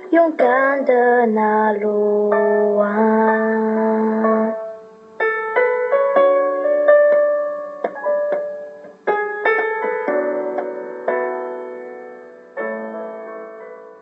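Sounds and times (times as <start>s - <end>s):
piano playing chords and notes: 0.0s - 14.0s.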